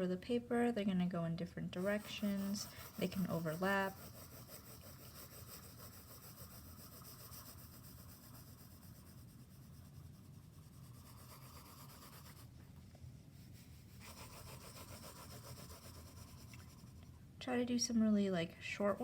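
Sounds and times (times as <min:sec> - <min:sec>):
drawing tool scratching on paper: 0:01.8 - 0:12.5, 0:13.4 - 0:17.1.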